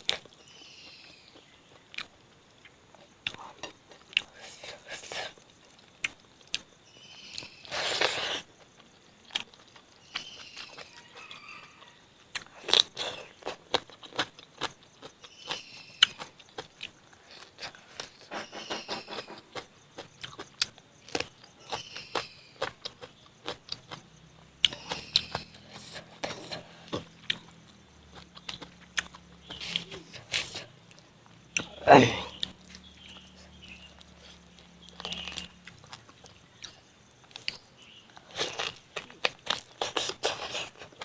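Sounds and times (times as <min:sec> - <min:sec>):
chewing and biting food: 0:00.0 - 0:02.2, 0:07.4 - 0:41.0
rustling hiss: 0:02.1 - 0:09.2, 0:17.0 - 0:19.9.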